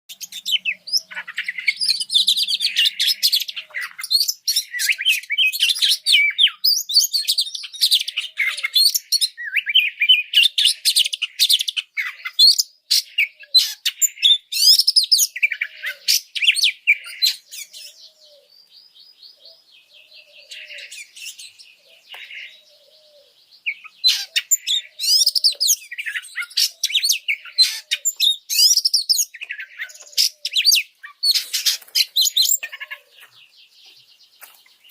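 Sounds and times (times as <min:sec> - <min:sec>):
bird singing whistles and chatter: 0:22.2 - 0:33.4.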